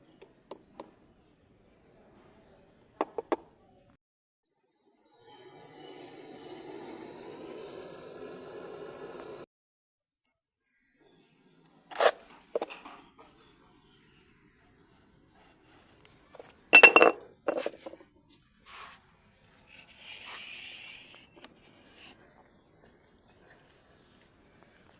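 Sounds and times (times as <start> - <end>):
hard objects clinking: 16.8 - 18.0.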